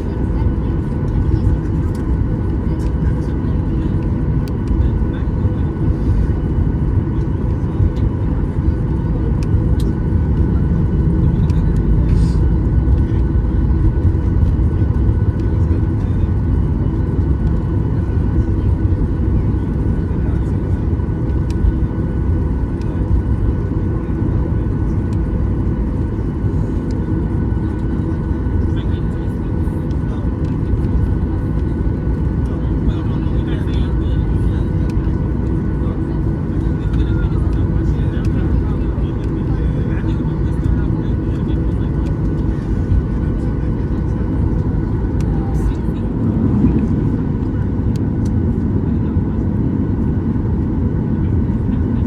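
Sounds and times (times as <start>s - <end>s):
aircraft cabin engine rumble: 0.0s - 52.0s.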